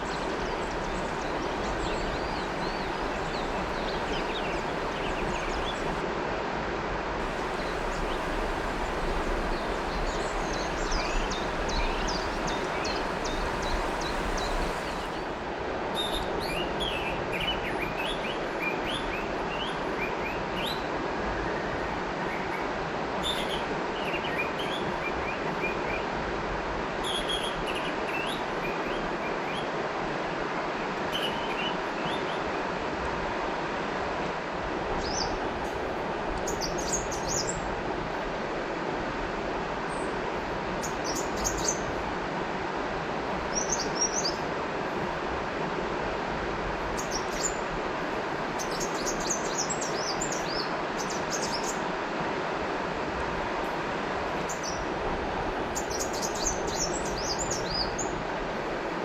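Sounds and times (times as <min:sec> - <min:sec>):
bird chirping: 0:00.0 - 0:06.0, 0:07.2 - 0:15.4
river water rushing: 0:00.0 - 0:06.3, 0:07.2 - 0:16.6, 0:32.7 - 0:59.0.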